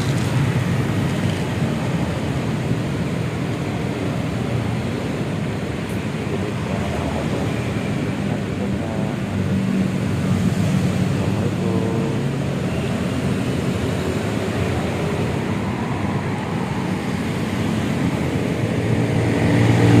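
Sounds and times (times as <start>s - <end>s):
road traffic: 0.0s - 20.0s.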